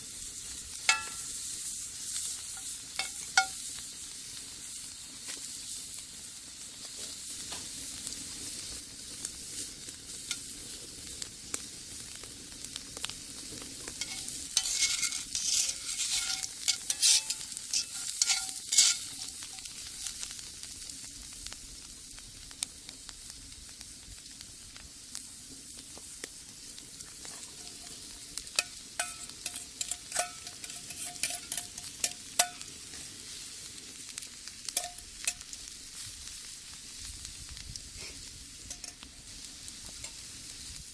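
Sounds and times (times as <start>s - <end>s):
food sizzling in a skillet: 0.0s - 40.9s
utensil scraping and clinking on pan: 0.8s - 1.5s, 2.1s - 3.6s, 13.8s - 20.2s, 27.2s - 32.8s, 34.8s - 35.5s, 38.6s - 39.1s.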